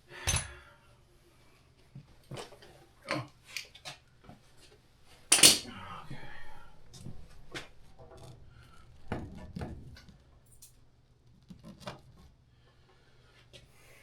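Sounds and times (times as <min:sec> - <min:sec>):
low steady hum: 0:05.3 - 0:11.2.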